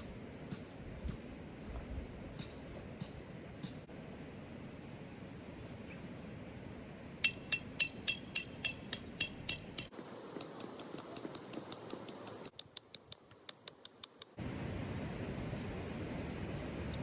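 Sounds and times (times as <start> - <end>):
sharp metallic clicks: 7.2 - 14.4.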